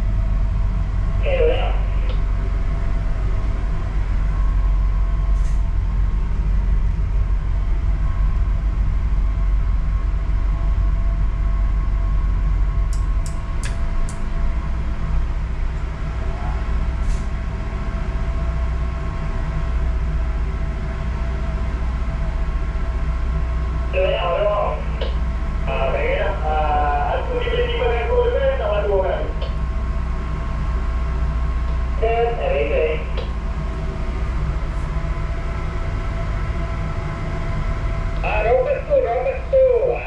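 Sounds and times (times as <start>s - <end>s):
ship engines droning: 0.0s - 40.0s.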